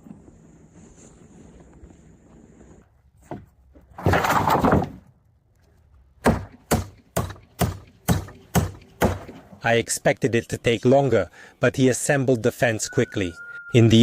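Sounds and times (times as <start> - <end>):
hammer striking wood: 6.2 - 9.5.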